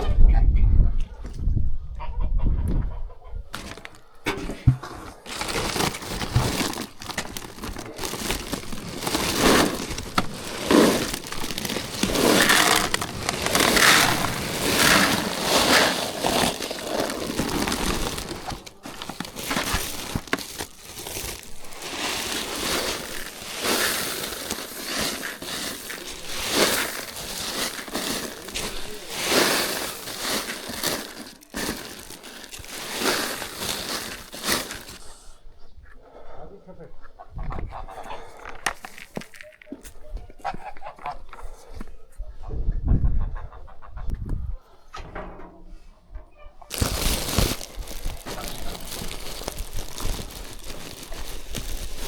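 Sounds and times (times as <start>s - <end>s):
chickens clucking: 1.9s - 4.8s.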